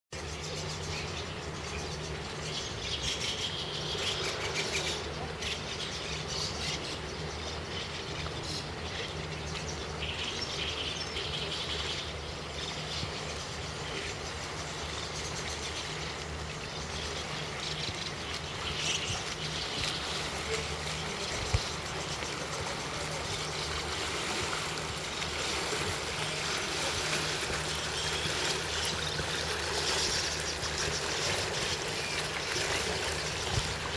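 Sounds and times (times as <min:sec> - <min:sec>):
wind: 0:00.1 - 0:33.9
low steady hum: 0:00.2 - 0:33.9
water rushing: 0:00.2 - 0:33.9.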